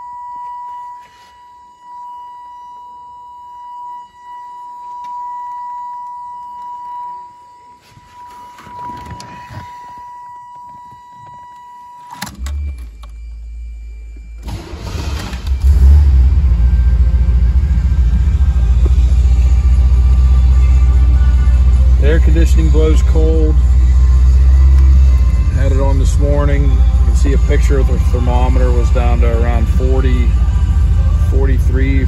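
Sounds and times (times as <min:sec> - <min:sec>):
warning chime tone: 0:00.0 - 0:32.0
ignition key click: 0:11.3 - 0:13.3
car engine cranking and running: 0:12.0 - 0:32.0.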